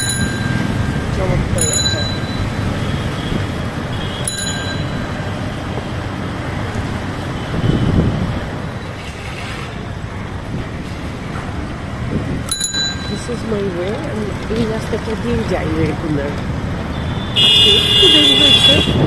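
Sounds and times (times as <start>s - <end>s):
bicycle bell ringing: 0.0s - 3.3s, 4.0s - 5.6s, 12.5s - 13.8s
road traffic rumble: 0.0s - 19.0s.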